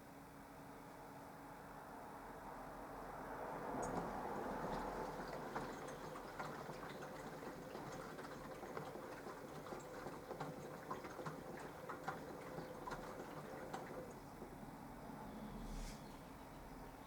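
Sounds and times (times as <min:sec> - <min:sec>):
washing machine motor humming: 0:04.0 - 0:15.2.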